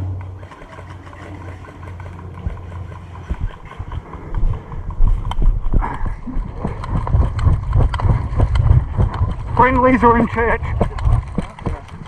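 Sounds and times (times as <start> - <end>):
wind rumble on microphone: 2.4 - 12.0.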